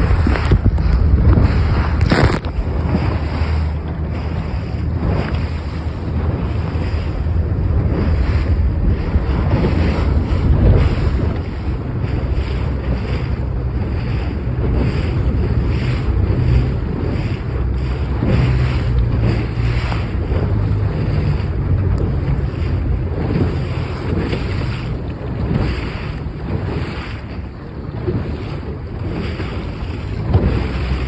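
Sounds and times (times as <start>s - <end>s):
gusty wind buffeting microphone: 0.0s - 31.0s
rushing water: 0.0s - 31.0s.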